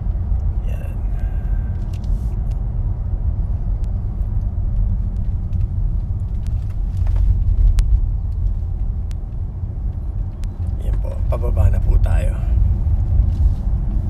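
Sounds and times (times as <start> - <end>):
car engine rumble: 0.0 - 14.0
road noise: 0.0 - 14.0.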